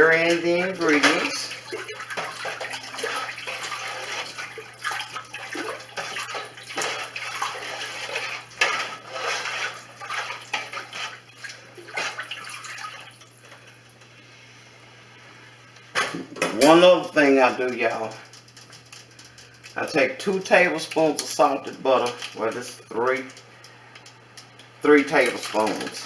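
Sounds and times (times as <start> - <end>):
liquid sloshing in a pot: 0.0 - 13.9, 24.0 - 26.0.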